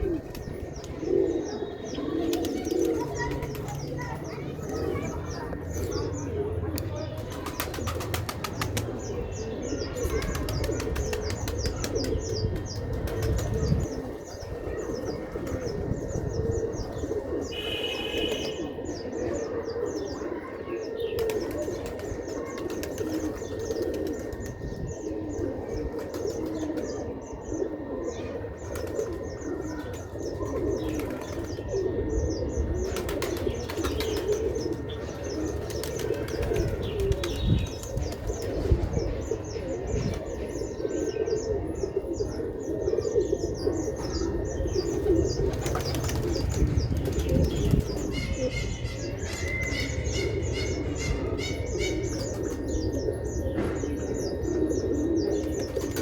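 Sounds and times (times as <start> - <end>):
pigeons cooing: 0.0 - 56.0
wings flapping: 45.5 - 47.8.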